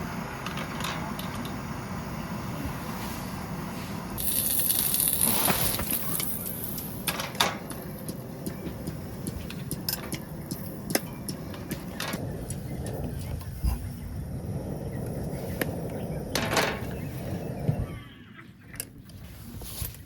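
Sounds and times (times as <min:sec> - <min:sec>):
hiss: 0:02.4 - 0:09.4.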